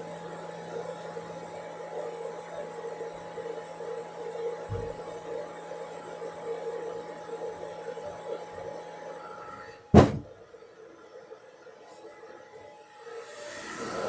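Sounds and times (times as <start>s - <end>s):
loud knock: 10.0s - 10.3s.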